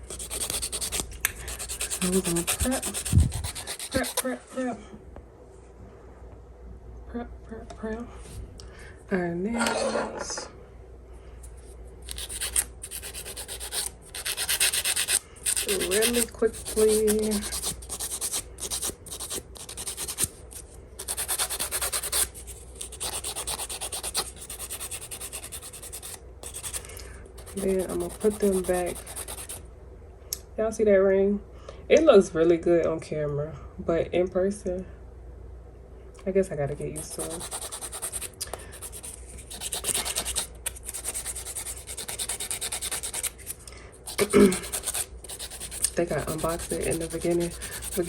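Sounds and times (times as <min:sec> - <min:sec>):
nail file scraping: 0:00.0 - 0:04.3, 0:12.0 - 0:29.6, 0:37.0 - 0:48.0.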